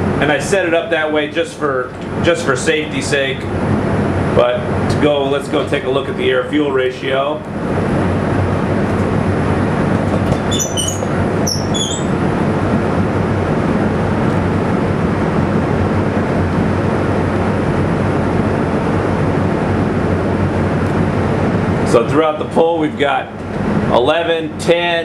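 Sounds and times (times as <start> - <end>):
engine idling: 0.0 - 11.5.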